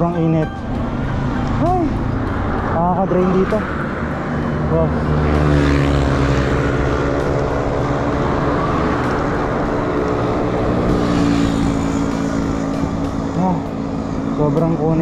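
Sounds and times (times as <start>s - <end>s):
vehicle engine droning: 0.0s - 15.0s.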